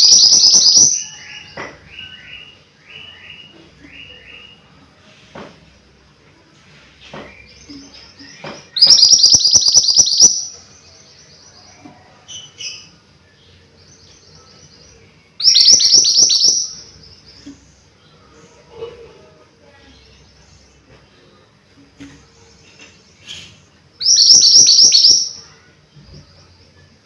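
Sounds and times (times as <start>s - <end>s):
songbird trilling: 0.0s - 1.4s, 8.8s - 10.5s, 15.4s - 16.9s, 24.0s - 25.4s.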